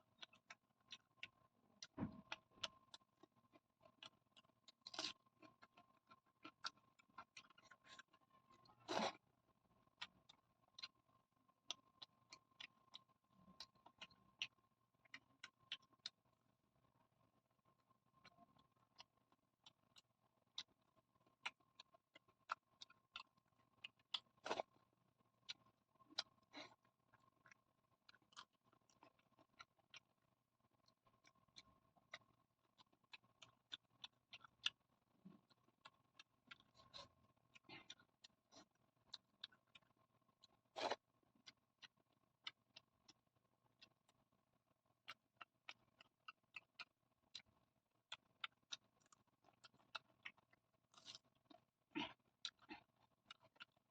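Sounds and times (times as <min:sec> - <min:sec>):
wet chewing and mouth clicks: 0:00.0 - 0:16.3, 0:17.7 - 0:53.9
faint steady hum: 0:00.0 - 0:53.9
chewing mouth clicks and smacks: 0:30.8 - 0:43.2, 0:45.0 - 0:53.9.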